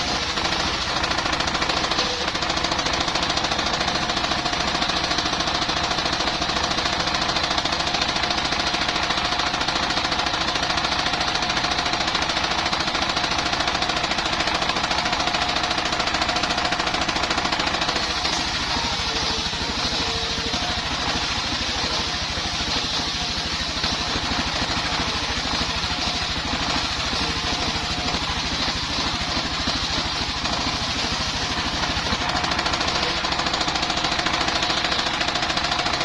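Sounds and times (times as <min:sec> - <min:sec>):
saw whining: 0:00.0 - 0:04.4, 0:13.2 - 0:36.0
sawmill engine knocking: 0:00.0 - 0:36.0.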